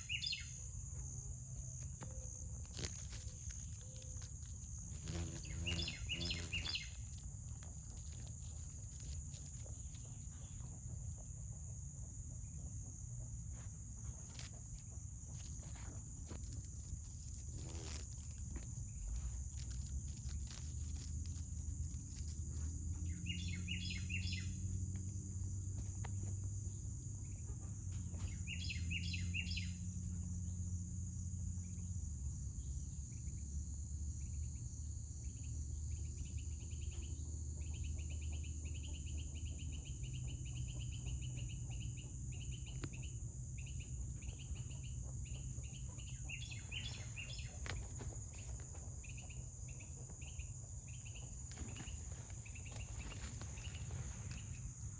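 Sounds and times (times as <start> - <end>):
bird chirps: 0.0 - 1.0, 4.9 - 13.0, 21.8 - 24.8, 27.2 - 30.2, 35.2 - 54.9
insect chorus drone: 0.0 - 54.9.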